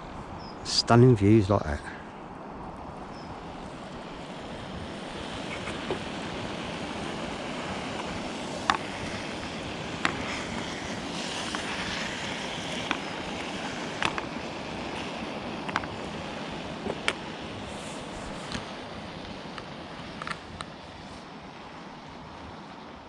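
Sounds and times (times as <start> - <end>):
steaks sizzling in a pan: 5.3 - 18.4
fat spitting pops: 5.5 - 6.1.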